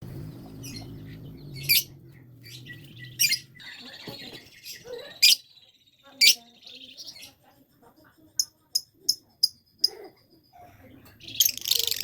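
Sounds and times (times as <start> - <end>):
lovebird chirping: 0.1 - 7.4, 11.2 - 12.0.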